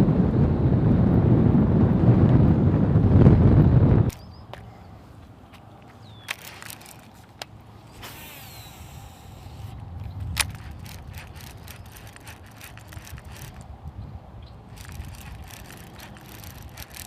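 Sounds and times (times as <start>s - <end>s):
wind rumbling on microphone: 0.0s - 5.0s, 6.0s - 17.0s
fishing gear clicks and rattles: 5.5s - 7.6s, 10.0s - 13.7s, 14.7s - 17.0s.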